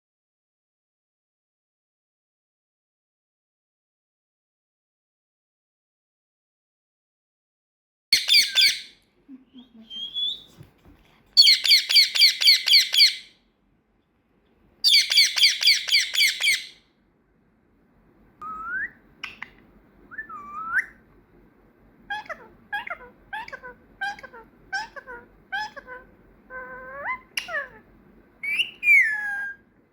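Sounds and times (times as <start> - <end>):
parrot squawking: 8.2 - 9.0, 11.4 - 13.4, 14.8 - 16.8, 22.1 - 29.6
parrot whistling: 8.2 - 9.0, 11.4 - 13.3, 14.8 - 16.8, 18.4 - 19.5, 20.1 - 21.0, 28.4 - 29.6.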